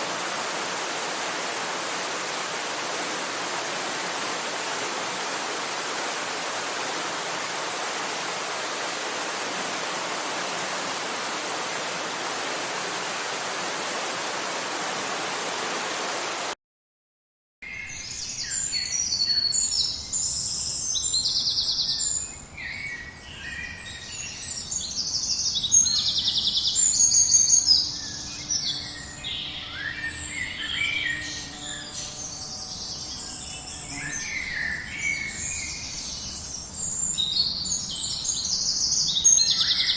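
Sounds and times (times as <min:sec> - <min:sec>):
water rushing: 0:00.0 - 0:16.6
songbirds chirping and trilling: 0:17.6 - 0:39.9.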